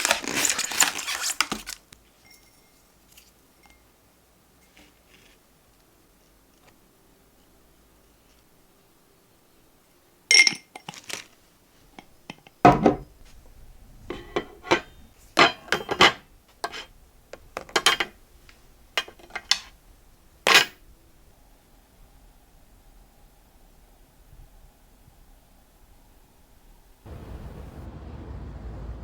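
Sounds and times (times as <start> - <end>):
kitchenware knocks and clatters: 12.7 - 13.1, 14.1 - 16.9
dishes clinking: 14.1 - 16.9.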